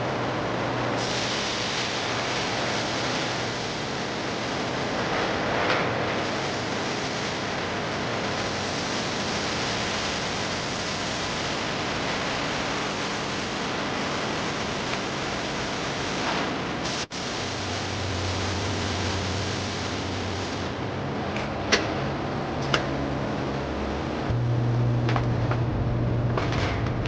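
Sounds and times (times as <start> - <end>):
low hum: 22.1 - 27.0.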